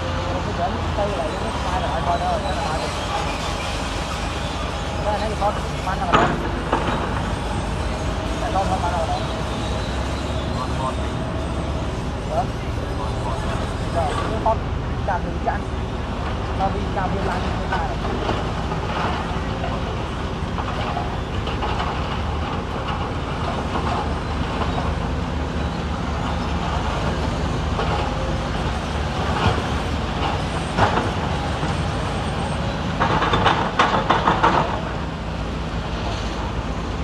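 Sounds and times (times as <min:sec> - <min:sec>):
heavy diesel machinery running: 0:00.0 - 0:37.0
sharp metallic knocks: 0:06.0 - 0:07.6.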